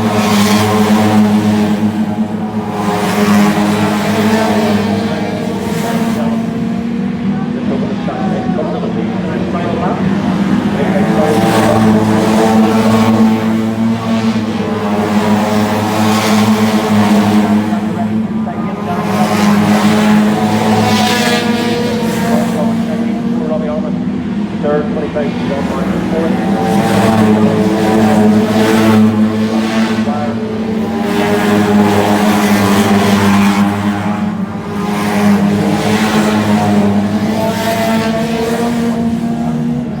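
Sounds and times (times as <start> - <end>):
car engine running: 0.0 - 40.0.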